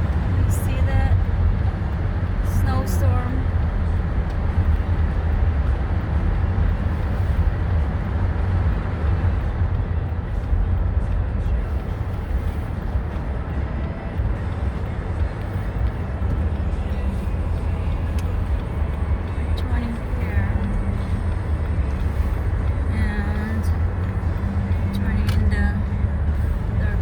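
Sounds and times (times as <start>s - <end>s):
car driving heard from inside: 0.0s - 27.0s.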